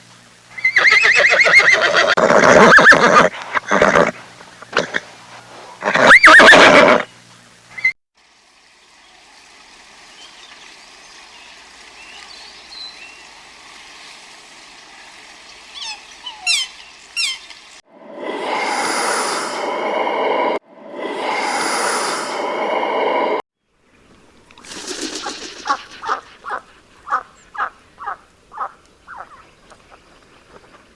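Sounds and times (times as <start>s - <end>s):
horse whinnying: 0.6s - 5.1s, 5.7s - 7.1s
breathy noisy sound: 17.9s - 23.4s.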